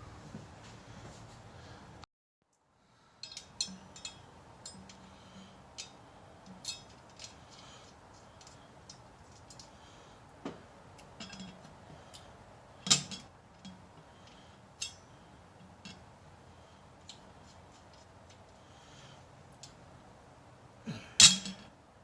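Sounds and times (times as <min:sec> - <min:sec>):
hand tools clinking on metal: 0:03.2 - 0:07.8, 0:11.1 - 0:15.1, 0:21.2 - 0:21.7
loud metal clank: 0:21.2 - 0:21.7.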